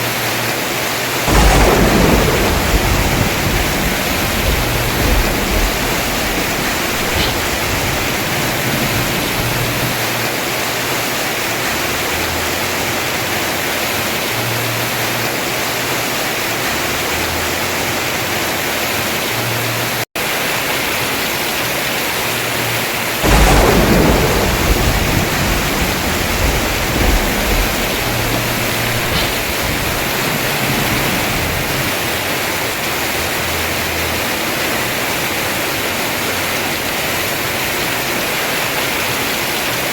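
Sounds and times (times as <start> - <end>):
heavy rain on a roof: 0.0 - 39.9
thunder clap rumbling: 1.2 - 11.2, 23.2 - 39.4.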